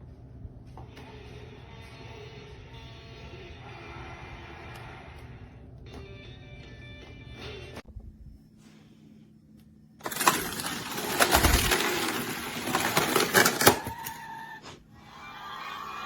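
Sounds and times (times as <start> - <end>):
toy track clattering: 10.0 - 14.4.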